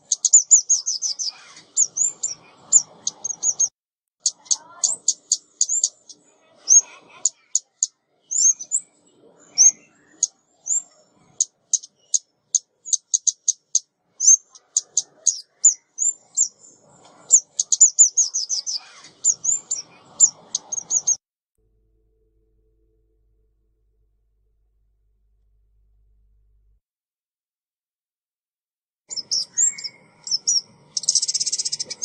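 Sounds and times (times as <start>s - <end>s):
small songbird calling: 0.0s - 21.2s, 29.1s - 32.0s.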